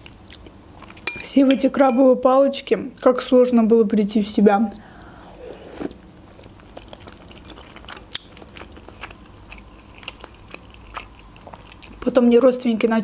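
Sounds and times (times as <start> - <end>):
wet chewing clicks and smacks: 6.3 - 13.0.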